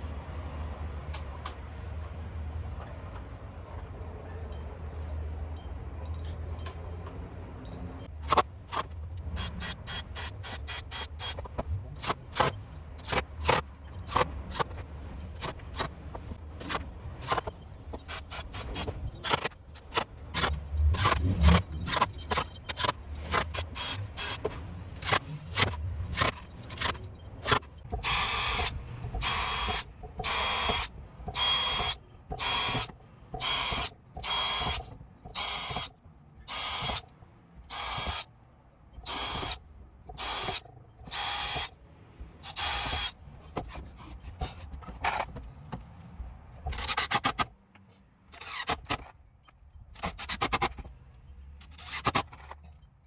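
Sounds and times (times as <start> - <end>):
power screwdriver clicking: 22.7 - 37.1, 37.7 - 38.3, 39.0 - 41.7, 42.4 - 43.1
power screwdriver whirring bursts: 22.8 - 24.4, 27.9 - 38.3, 39.0 - 41.7, 42.4 - 43.2, 48.3 - 49.0.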